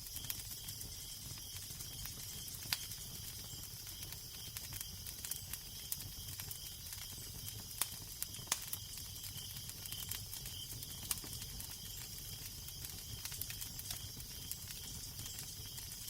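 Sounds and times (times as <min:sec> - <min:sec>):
fire crackling: 0:00.0 - 0:16.0
steady fire hiss: 0:00.0 - 0:16.0.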